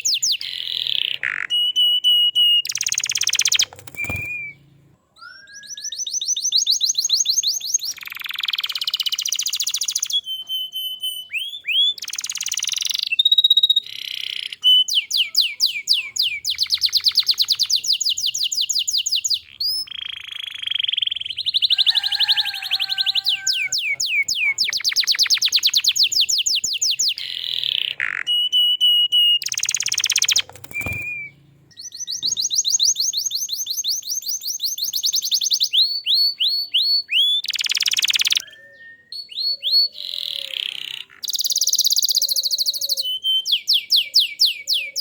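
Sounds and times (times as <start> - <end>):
canary singing trills: 0.0 - 45.0.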